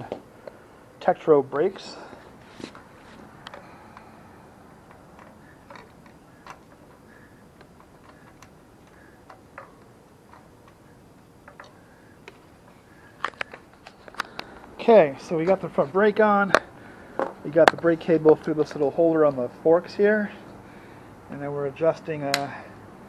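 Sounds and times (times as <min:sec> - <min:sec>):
light clicks and taps of tools: 0:02.6 - 0:04.1, 0:04.8 - 0:12.4.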